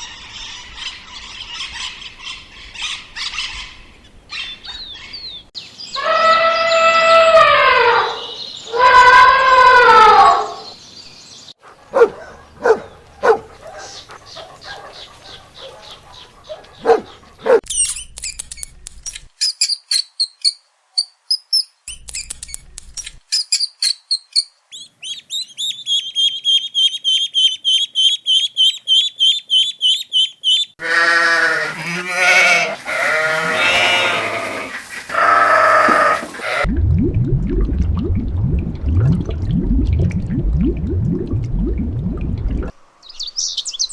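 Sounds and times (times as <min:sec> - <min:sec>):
high chirping calls: 0:19.4 - 0:30.8
loud wavering bleats: 0:30.8 - 0:36.7.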